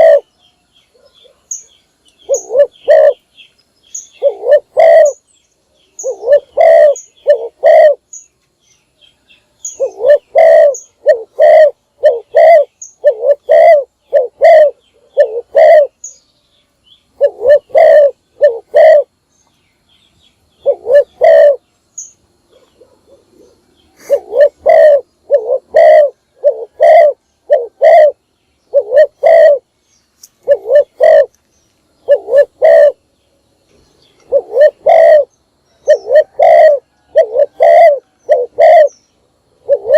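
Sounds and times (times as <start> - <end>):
dove cooing: 0.0 - 3.3, 4.0 - 5.3, 6.0 - 8.2, 9.6 - 16.2, 17.1 - 19.2, 20.6 - 21.6, 22.4 - 29.7, 30.4 - 31.3, 32.0 - 33.0, 34.2 - 39.0, 39.6 - 39.9.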